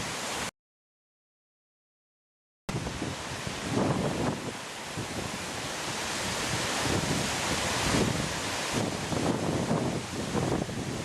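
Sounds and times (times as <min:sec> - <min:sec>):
small waterfall rushing: 0:00.0 - 0:00.5, 0:02.7 - 0:11.0
wind buffeting microphone: 0:02.7 - 0:11.0.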